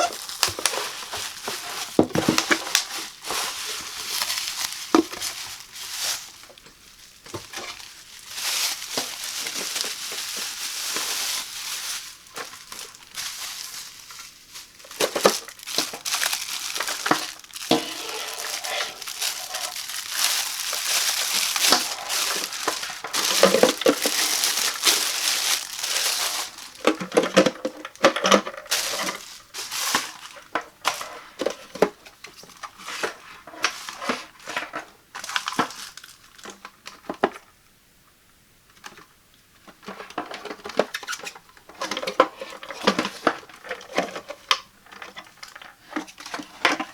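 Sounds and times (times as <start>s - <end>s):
packaging crinkling: 0.0s - 36.6s.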